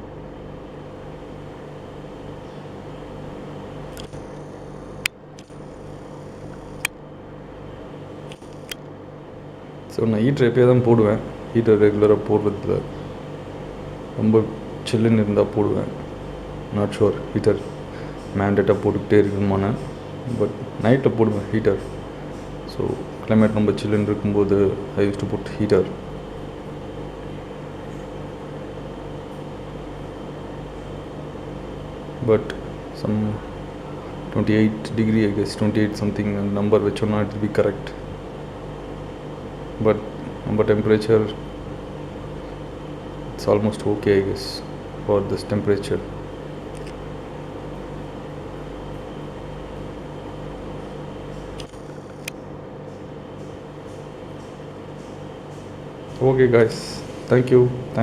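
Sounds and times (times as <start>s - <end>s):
aquarium pump humming: 0.0s - 58.0s
sharp click: 3.9s - 5.6s, 8.3s - 8.9s, 46.7s - 47.0s, 51.4s - 52.4s.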